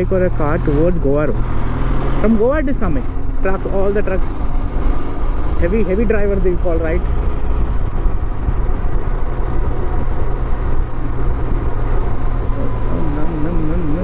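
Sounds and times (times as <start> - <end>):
motorcycle engine cruising: 0.0 - 14.0
wind noise: 4.2 - 13.0.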